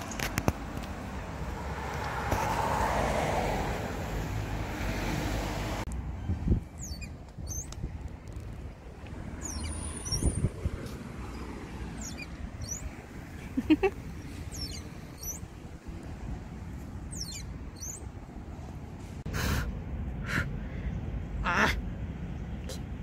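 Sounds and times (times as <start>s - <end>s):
birds chirping: 6.4s - 7.8s, 8.6s - 18.4s.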